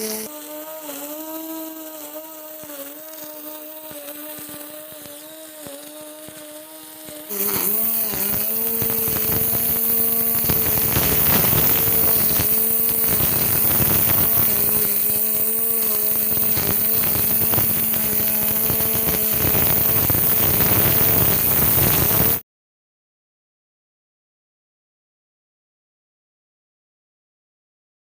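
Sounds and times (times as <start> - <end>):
brush cutter motor whine: 0.0 - 22.4.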